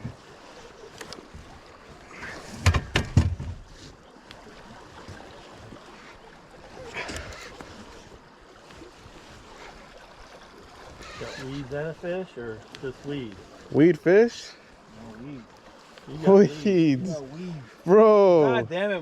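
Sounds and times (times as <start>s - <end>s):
water and boat hiss: 0.0s - 19.0s
sharp knocks on boat: 2.5s - 3.7s.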